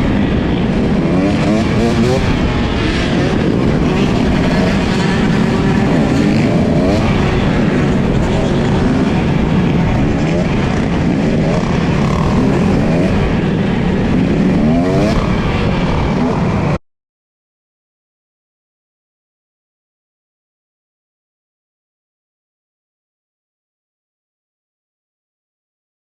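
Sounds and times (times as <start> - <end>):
motorcycle engines revving: 0.0 - 16.8.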